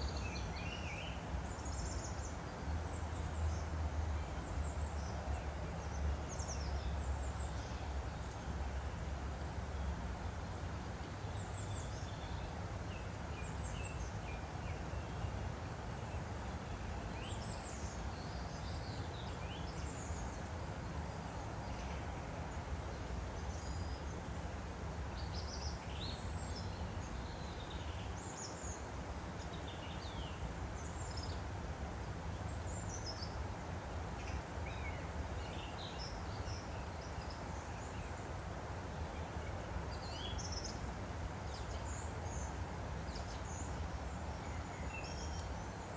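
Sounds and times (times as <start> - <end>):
stream flowing: 0.0 - 45.9.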